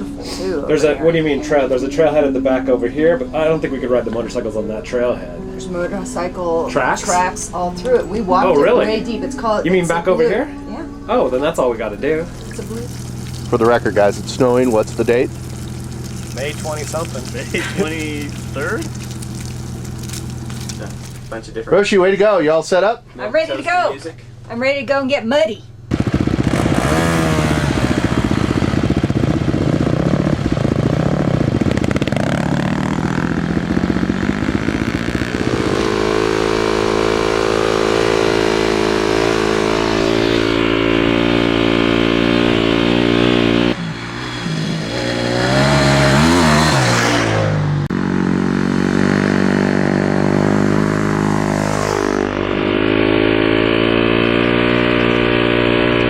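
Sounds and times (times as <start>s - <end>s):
dirt bike engines revving: 12.1s - 21.5s, 25.9s - 56.0s.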